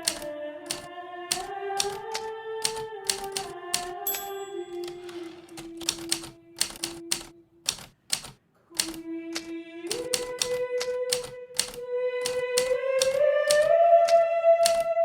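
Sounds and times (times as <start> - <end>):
typewriter keys striking: 0.0 - 13.7, 14.6 - 14.9.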